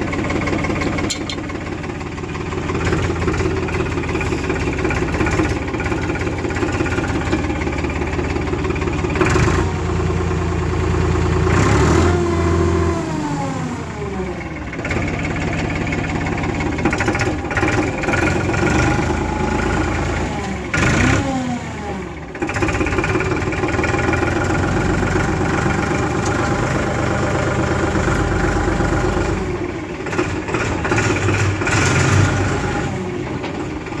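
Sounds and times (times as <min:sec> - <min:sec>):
vehicle engine running: 0:00.0 - 0:21.2.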